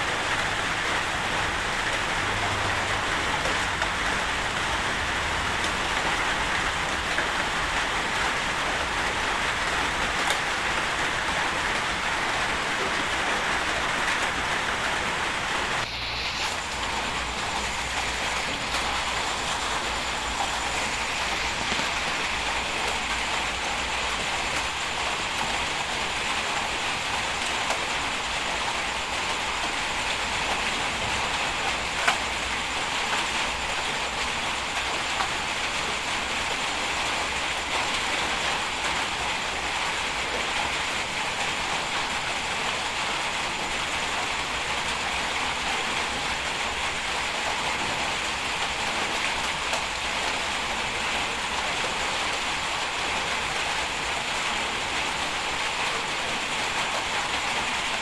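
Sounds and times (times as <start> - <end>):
steady hiss: 0.0 - 38.1.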